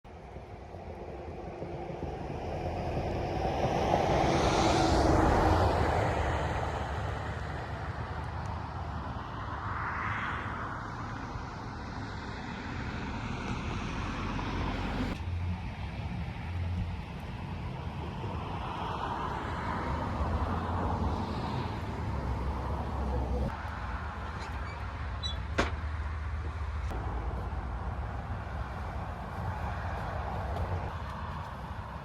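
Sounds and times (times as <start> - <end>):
vehicle passing: 0.7 - 24.3.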